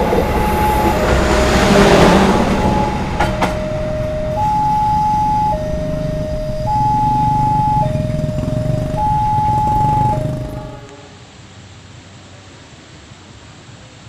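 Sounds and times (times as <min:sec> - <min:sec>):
two-tone electronic alarm: 0:00.0 - 0:11.0
train rumble: 0:00.0 - 0:11.5.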